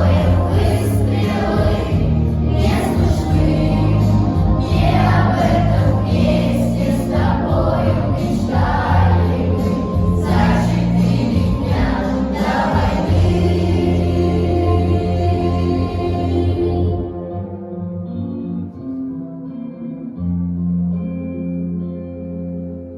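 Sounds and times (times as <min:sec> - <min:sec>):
children's choir singing: 0:00.0 - 0:17.2
instrumental backing track: 0:00.0 - 0:22.9.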